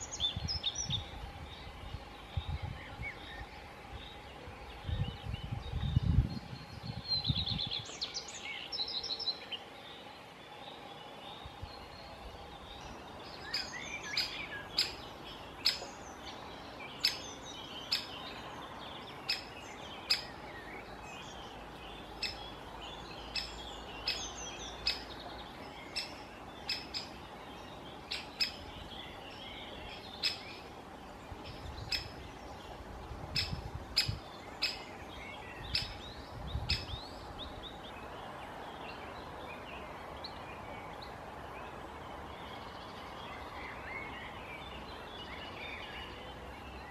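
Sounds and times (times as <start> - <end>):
small birds chirping: 0.0 - 46.9
woodpecker sharp kik calls: 13.5 - 15.0, 23.3 - 25.1, 25.9 - 27.2, 33.3 - 34.8.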